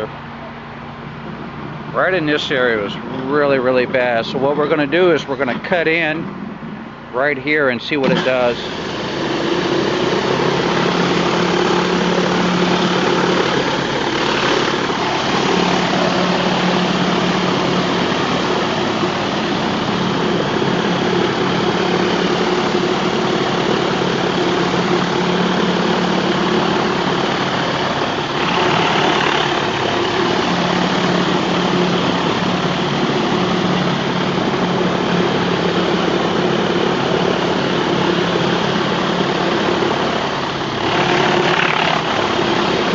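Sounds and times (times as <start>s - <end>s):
pressure washer engine drone: 0.0s - 42.9s
water jet hissing on concrete: 8.0s - 31.9s.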